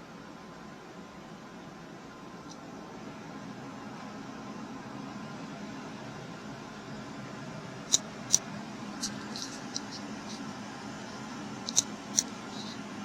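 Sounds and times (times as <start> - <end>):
air conditioner humming: 0.0 - 13.0
sharp high-pitched ticks: 11.6 - 12.8.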